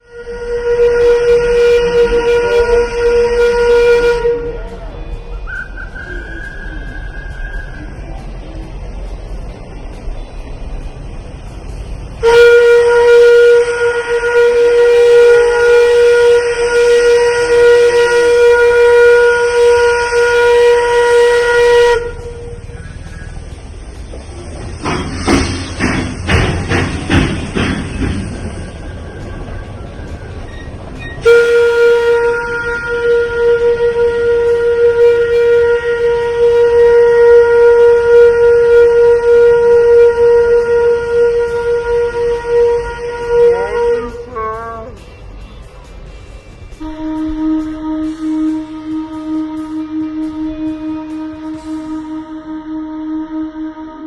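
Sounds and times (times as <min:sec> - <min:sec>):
steam locomotive whistle: 0:00.0 - 0:08.2, 0:12.1 - 0:23.6, 0:24.8 - 0:45.6, 0:46.7 - 0:54.0
hiss of steam: 0:22.6 - 0:30.3, 0:47.8 - 0:52.5.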